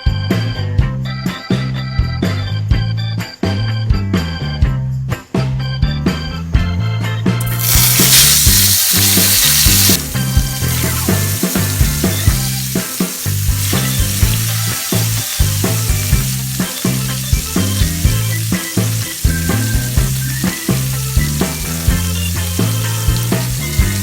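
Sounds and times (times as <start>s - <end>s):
background music with steady beat: 0.0s - 24.0s
food sizzling in hot oil: 7.4s - 24.0s.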